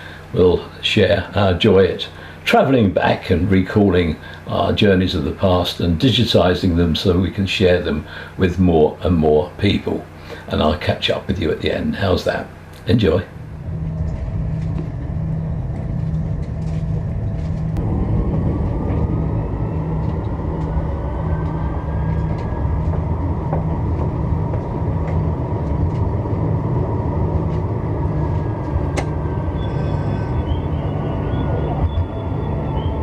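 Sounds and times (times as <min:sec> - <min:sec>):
traction motor whine: 0:00.0 - 0:33.0
tram wheels rumbling on rails: 0:12.5 - 0:33.0.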